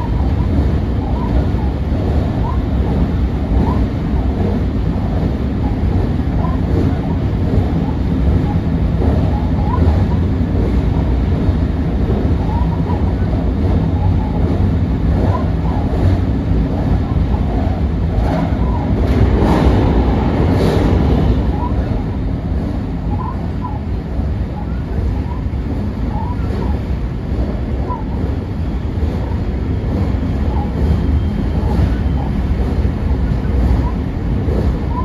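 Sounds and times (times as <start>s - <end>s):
passing train rushing: 0.0s - 35.0s
train wheels rumbling on rails: 0.0s - 35.0s.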